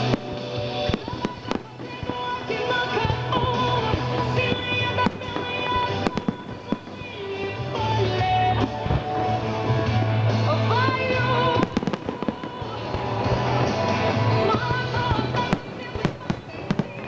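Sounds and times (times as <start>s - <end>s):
fireworks bangs: 0.0s - 17.0s
music with bass line: 0.0s - 17.0s.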